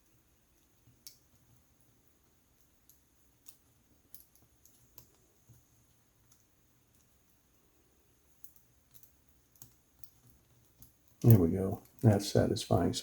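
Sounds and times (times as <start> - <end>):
small clicks of laptop parts: 2.6 - 5.6, 8.4 - 11.2.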